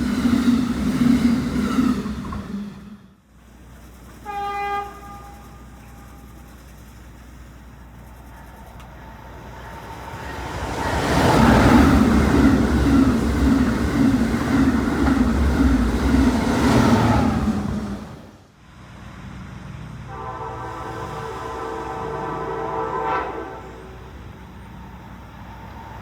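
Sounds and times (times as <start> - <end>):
train wheels rushing on rail: 0.0 - 26.0
locomotive horn: 4.2 - 6.3, 20.1 - 24.3.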